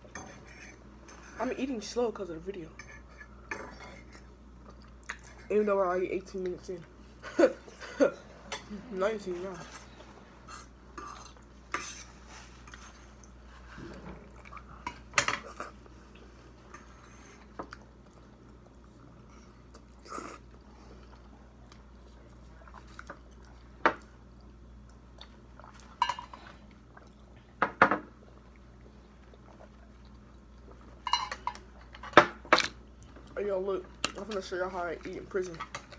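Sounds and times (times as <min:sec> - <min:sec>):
faint low hum: 0:00.0 - 0:35.9
cutlery and dishes clinking: 0:31.1 - 0:32.3.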